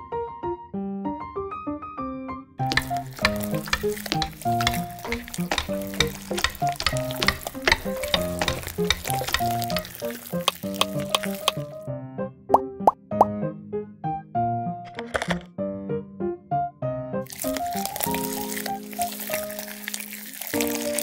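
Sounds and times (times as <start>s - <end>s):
light music with plucked melody: 2.6s - 11.8s, 17.3s - 21.0s
food sizzling in hot fat: 2.7s - 11.8s, 17.3s - 21.0s.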